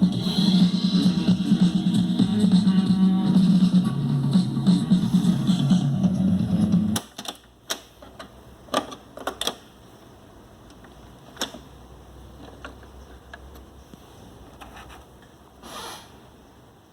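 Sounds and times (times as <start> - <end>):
clicks and knocks of handling: 7.0 - 9.7, 12.4 - 13.7.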